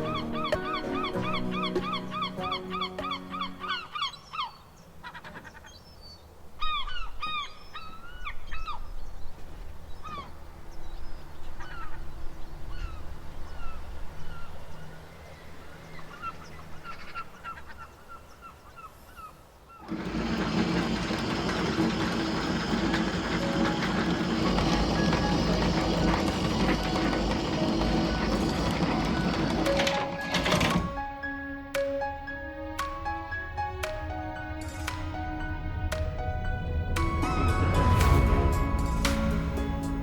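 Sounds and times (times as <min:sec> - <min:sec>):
birds honking: 0:00.0 - 0:05.7
loud dense music: 0:32.5 - 0:40.0.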